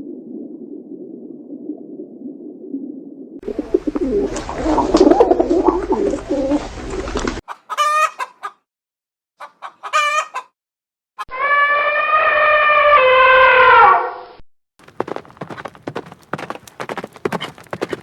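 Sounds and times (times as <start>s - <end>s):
flock of birds clucking: 3.5s - 8.6s, 9.4s - 10.5s.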